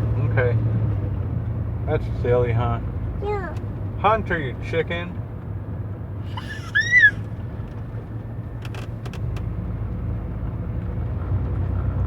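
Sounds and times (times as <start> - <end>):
car rumble from inside: 0.0 - 12.0
child squealing: 6.3 - 7.3.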